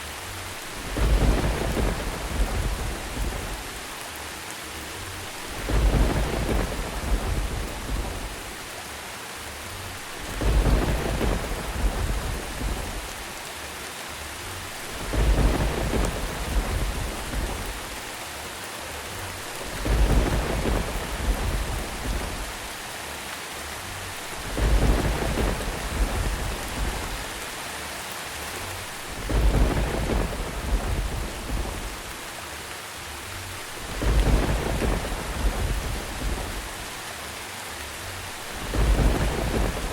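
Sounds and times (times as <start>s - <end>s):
steady rain: 0.0s - 39.9s
thunder rumbling: 0.5s - 4.0s, 5.1s - 8.7s, 10.0s - 13.4s, 14.6s - 18.2s, 19.2s - 22.8s, 23.9s - 27.6s, 28.7s - 32.3s, 33.5s - 37.1s, 38.2s - 39.9s.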